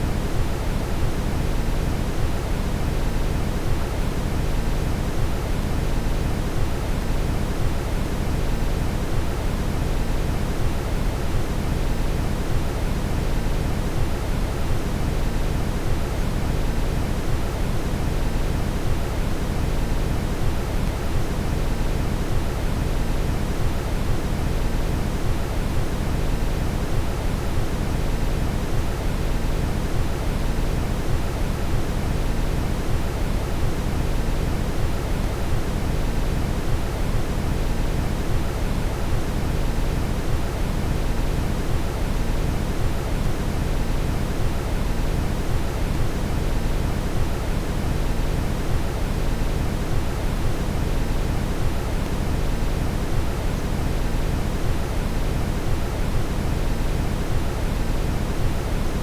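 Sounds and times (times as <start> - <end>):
brown noise hiss: 0.0 - 59.0.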